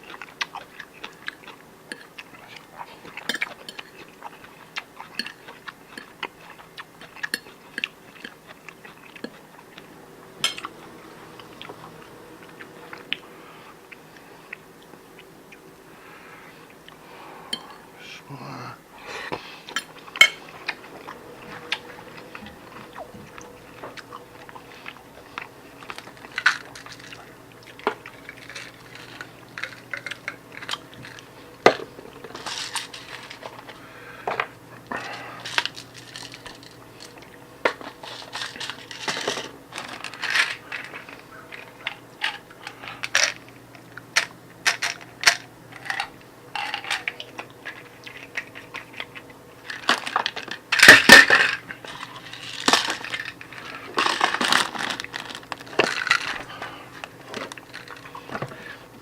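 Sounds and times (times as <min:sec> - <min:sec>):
cutlery clinking on a plate: 0:10.4 - 0:10.7, 0:19.7 - 0:20.5.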